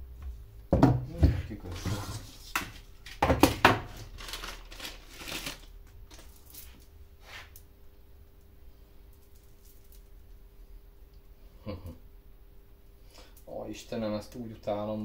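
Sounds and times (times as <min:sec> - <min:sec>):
rustling: 0:09.1 - 0:10.4.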